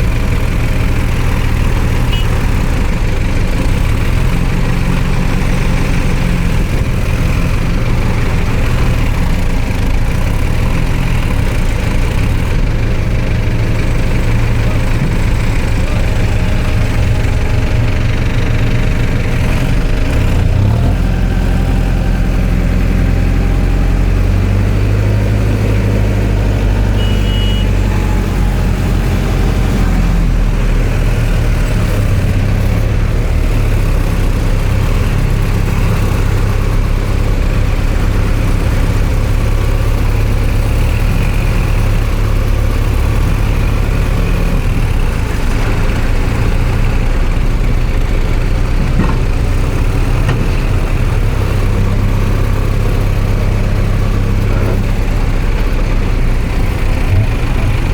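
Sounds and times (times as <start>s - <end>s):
heavy diesel engines running: 0.0s - 57.9s
brief high tone: 2.1s - 2.4s, 27.0s - 28.0s.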